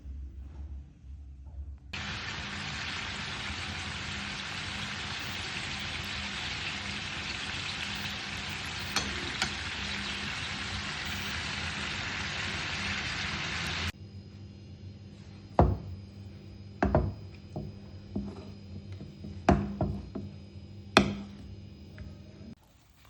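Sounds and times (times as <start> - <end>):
food sizzling in oil: 2.0 - 13.9.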